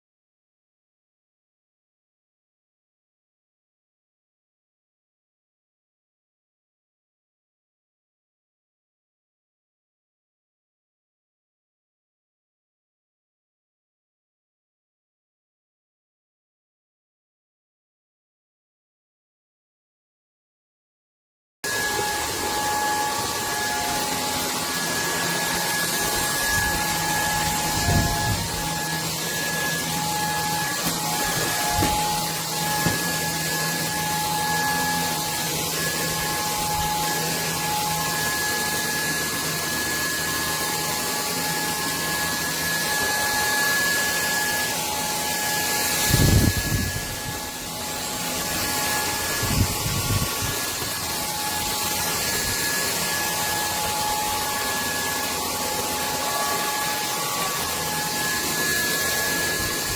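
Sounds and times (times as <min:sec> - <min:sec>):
vacuum cleaner motor whine: 0:21.6 - 0:59.9.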